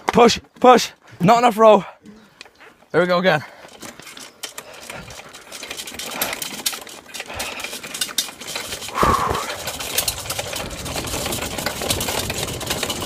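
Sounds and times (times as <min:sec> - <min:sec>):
bike rattling over bumpy ground: 0:00.0 - 0:13.0.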